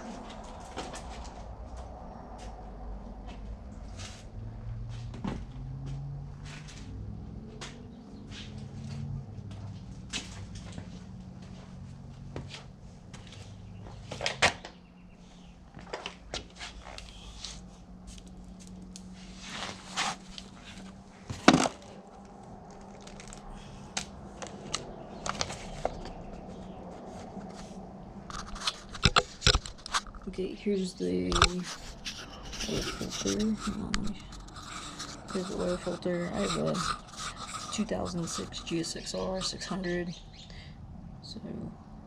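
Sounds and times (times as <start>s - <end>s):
steady low hum: 0.0s - 42.0s
tools and parts being handled: 28.3s - 30.3s, 31.4s - 38.6s.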